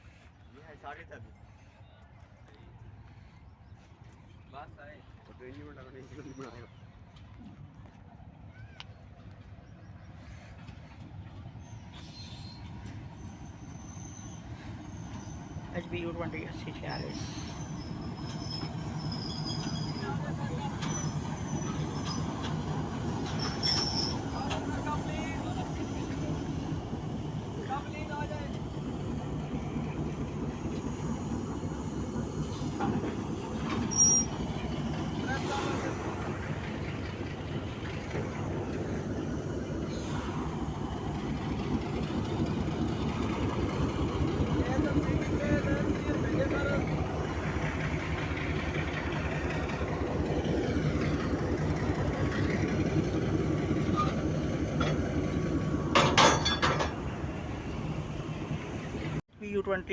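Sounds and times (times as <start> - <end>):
locomotive engine rumbling: 0.0 - 59.9
high-pitched squeak: 33.7 - 34.4.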